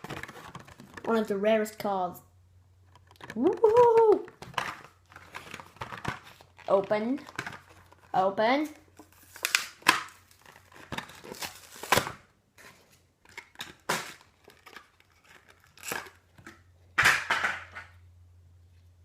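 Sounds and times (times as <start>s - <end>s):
plastic package crinkling and tearing: 0.0s - 1.3s, 2.8s - 8.2s, 8.9s - 16.6s.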